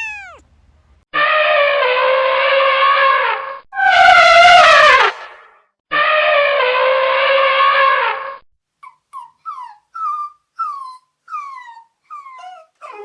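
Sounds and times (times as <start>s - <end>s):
dog whimpering: 0.0s - 0.4s, 8.8s - 13.0s.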